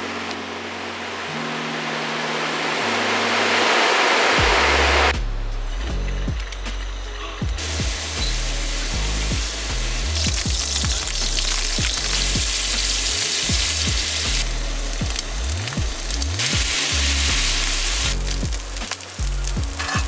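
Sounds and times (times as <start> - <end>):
background music with bass beat: 4.4 - 20.0
food sizzling in a pan: 7.4 - 20.0.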